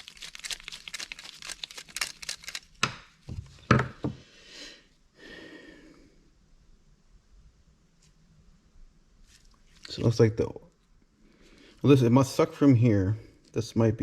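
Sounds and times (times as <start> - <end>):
crinkling and clicking of parts: 0.0 - 3.2
soft rustle: 7.8 - 10.1.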